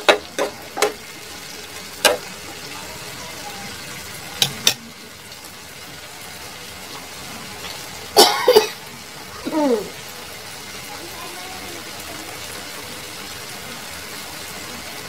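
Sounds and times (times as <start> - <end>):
okra sizzling in frying pan: 0.0 - 15.0
person coughing: 8.2 - 8.8.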